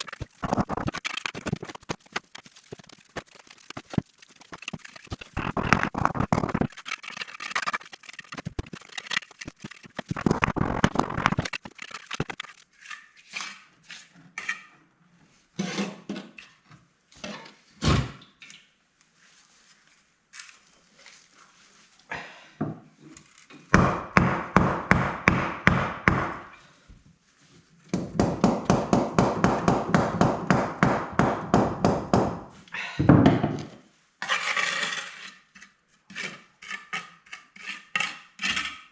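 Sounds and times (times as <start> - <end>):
hand tool scraping: 0.0 - 14.7, 15.6 - 16.1, 34.2 - 38.9.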